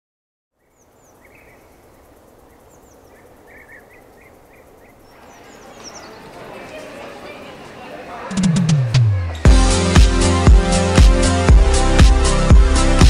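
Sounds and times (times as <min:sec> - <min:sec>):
birds chirping: 0:00.5 - 0:09.9
outdoor background hiss: 0:00.5 - 0:13.0.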